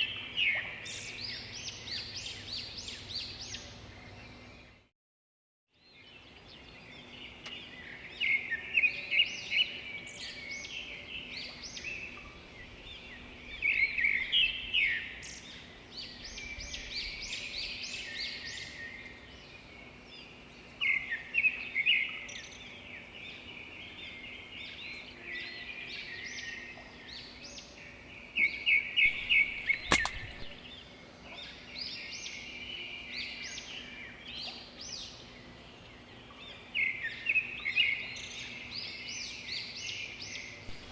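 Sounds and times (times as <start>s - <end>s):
small birds chirping: 29.0s - 30.9s, 39.4s - 40.9s
sharp click: 29.1s - 30.7s.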